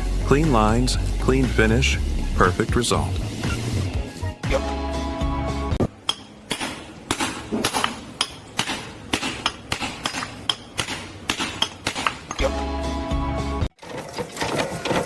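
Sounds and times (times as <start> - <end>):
background music: 0.0 - 5.9, 12.4 - 13.7.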